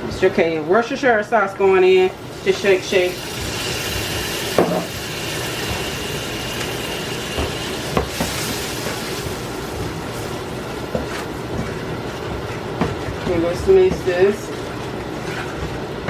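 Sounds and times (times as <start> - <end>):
food sizzling in a frying pan: 2.2 - 11.0.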